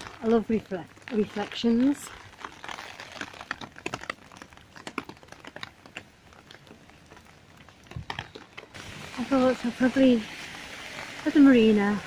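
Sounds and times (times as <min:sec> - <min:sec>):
rain tapping on umbrella: 0:00.0 - 0:12.0
rain hiss: 0:08.7 - 0:12.0.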